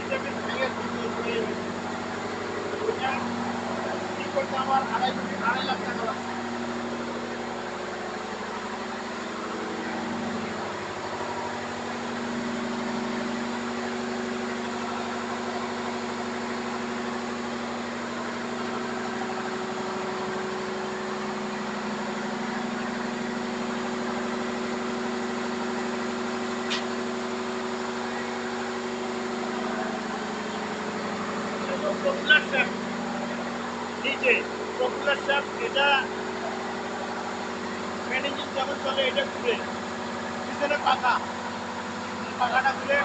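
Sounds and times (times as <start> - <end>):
engine-room machinery drone: 0.0 - 43.0.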